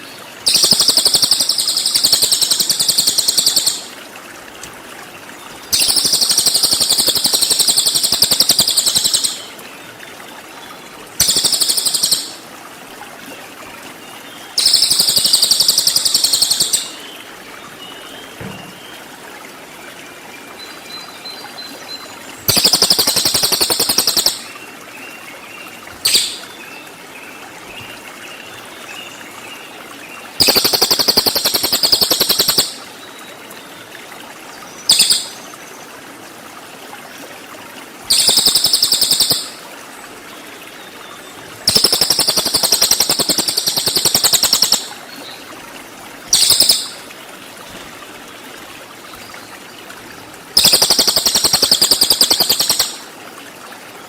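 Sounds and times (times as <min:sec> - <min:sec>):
songbird rattling trills: 0:00.0 - 0:03.9, 0:05.7 - 0:09.5, 0:11.2 - 0:12.4, 0:14.6 - 0:17.0, 0:22.4 - 0:24.6, 0:26.0 - 0:26.5, 0:30.4 - 0:32.8, 0:34.9 - 0:35.4, 0:38.1 - 0:39.6, 0:41.6 - 0:45.0, 0:46.3 - 0:47.0, 0:50.6 - 0:53.0
faint steady hiss: 0:00.0 - 0:54.0.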